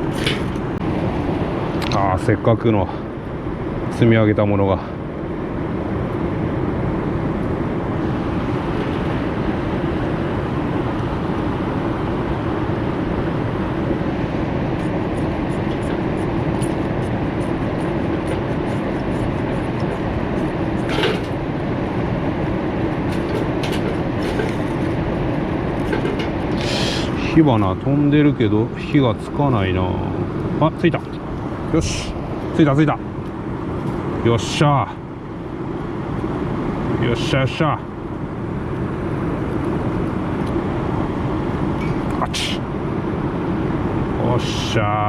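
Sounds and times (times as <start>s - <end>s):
fire starter rod scraping: 0.1s - 0.6s.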